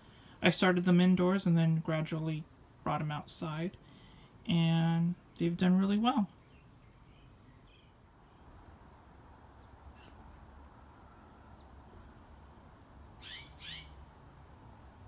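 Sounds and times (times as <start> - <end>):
birds chirping: 5.3 - 8.6, 9.5 - 12.1, 13.2 - 14.0.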